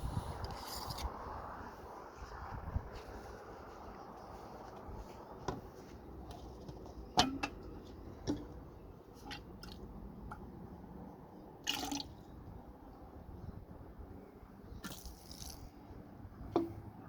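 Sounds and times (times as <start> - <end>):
water dripping: 11.6 - 12.2.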